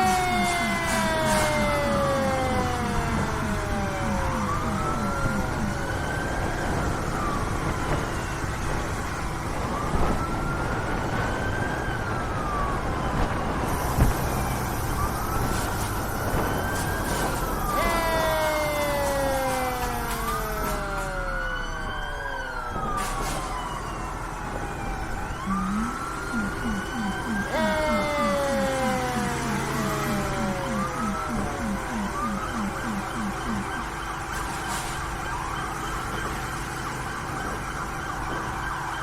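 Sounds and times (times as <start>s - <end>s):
road noise: 0.0s - 21.6s
emergency sirens wailing: 0.0s - 39.0s
fire truck engine: 0.0s - 39.0s.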